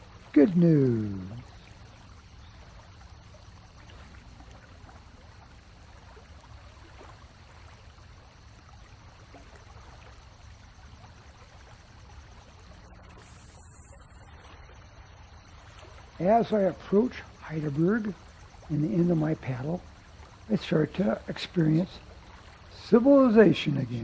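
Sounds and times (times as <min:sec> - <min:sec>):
faint running water: 0:12.9 - 0:24.0
loud steady hiss: 0:13.0 - 0:24.0.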